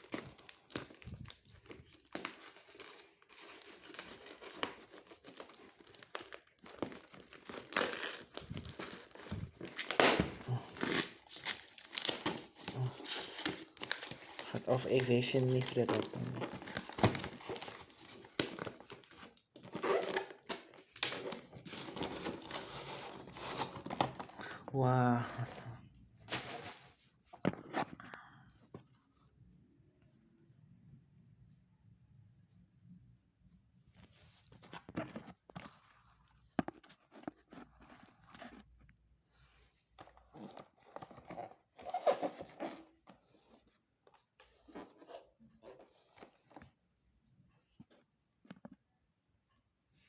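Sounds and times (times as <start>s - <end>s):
packaging crinkling and rustling: 0.0s - 24.7s, 26.3s - 27.8s, 40.0s - 46.7s.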